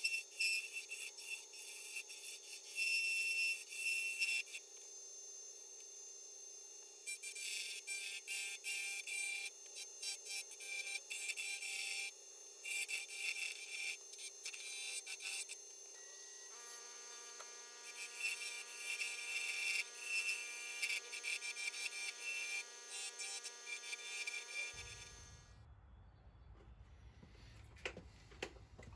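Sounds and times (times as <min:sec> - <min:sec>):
lathe tool scraping spinning wood: 0:16.5 - 0:25.5.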